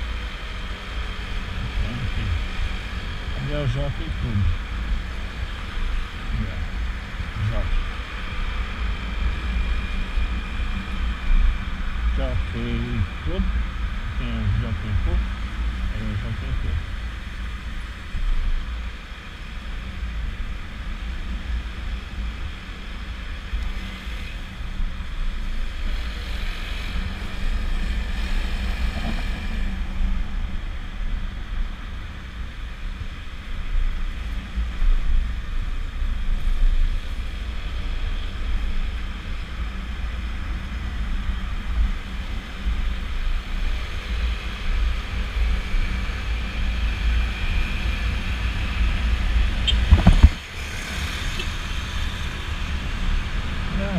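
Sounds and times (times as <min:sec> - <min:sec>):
road noise: 0:00.0 - 0:53.9
wind buffeting on microphone: 0:44.8 - 0:53.8.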